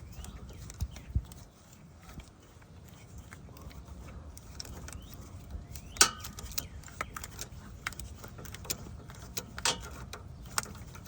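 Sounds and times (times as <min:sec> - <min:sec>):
hand tools clinking on metal: 0:05.7 - 0:10.7.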